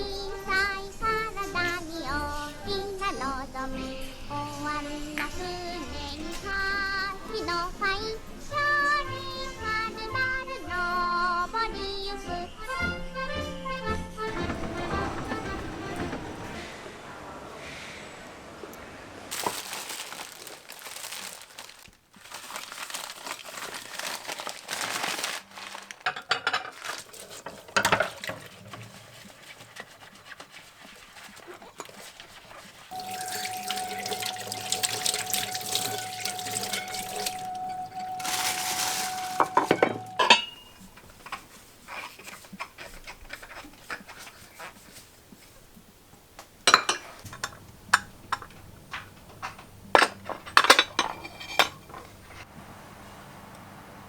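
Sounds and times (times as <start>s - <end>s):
dishes clinking: 14.2s - 16.6s, 22.3s - 29.4s, 32.9s - 44.2s, 46.6s - 52.5s
water running from a tap: 26.8s - 40.2s.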